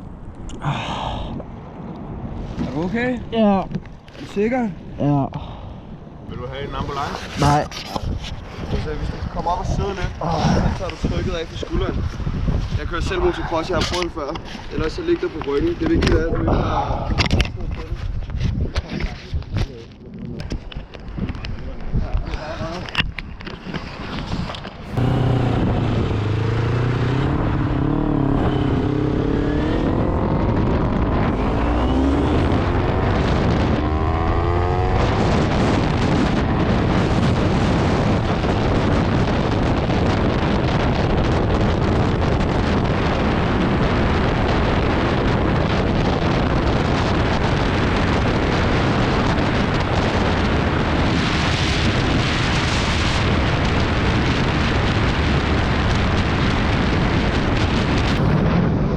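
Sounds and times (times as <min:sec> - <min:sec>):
wind and road noise: 0:00.0 - 0:58.9
motorcycle engine revving: 0:24.8 - 0:36.7, 0:58.0 - 0:58.8.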